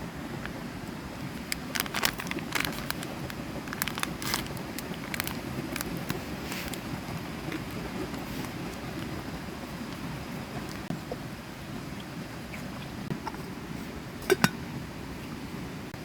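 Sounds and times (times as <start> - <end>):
sharp clicks and crackles: 1.4 - 6.9.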